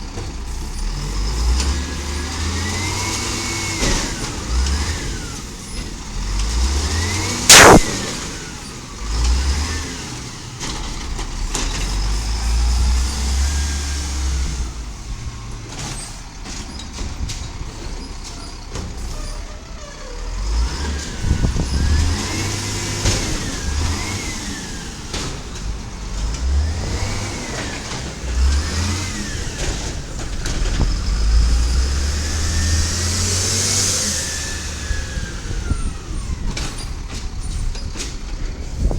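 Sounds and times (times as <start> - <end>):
rising and falling whines: 7.5 - 8.5
loud bang: 7.5 - 8.7.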